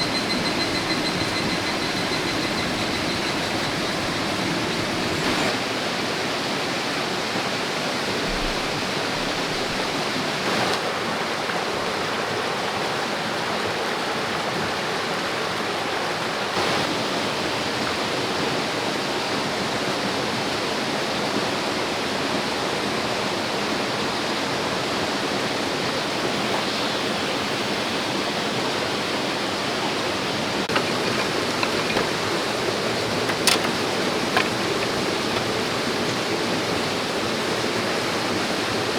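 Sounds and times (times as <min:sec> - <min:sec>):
small clicks: 0:30.7 - 0:35.8
river rushing over rocks: 0:30.7 - 0:38.9.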